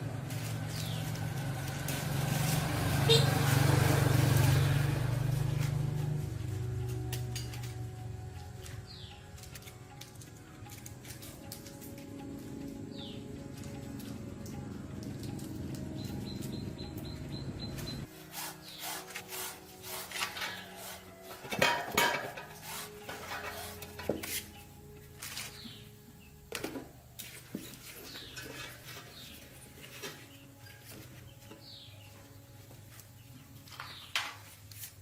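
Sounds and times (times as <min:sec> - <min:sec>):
background music: 0:00.0 - 0:35.0
tools and metal parts clinking: 0:20.1 - 0:25.7, 0:26.5 - 0:31.0.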